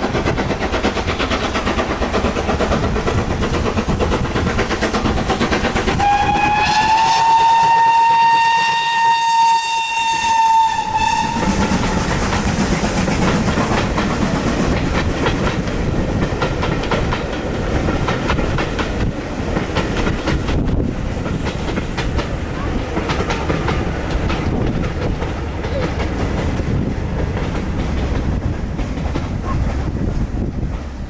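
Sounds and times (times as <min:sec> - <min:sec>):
train wheels clattering over rails: 0:00.0 - 0:31.0
steam locomotive whistle: 0:05.9 - 0:12.6.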